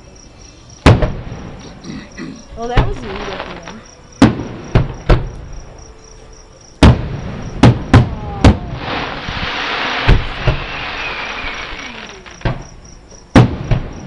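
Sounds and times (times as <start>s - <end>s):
fireworks bursting with booms: 0.8s - 1.6s, 2.7s - 5.7s, 6.8s - 14.0s
hiss: 8.8s - 12.5s.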